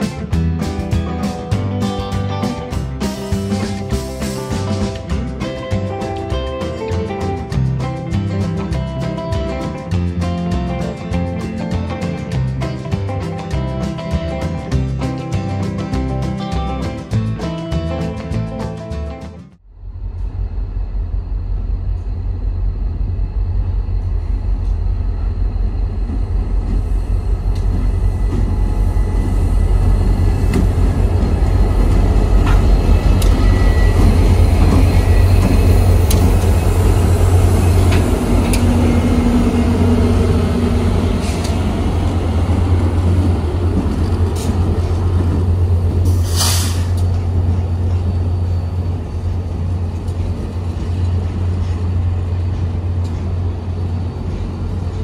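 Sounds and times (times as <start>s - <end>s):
train passing rumble: 0.0s - 55.0s
wheel clicks on rail: 25.7s - 48.3s
air hiss: 46.0s - 47.1s.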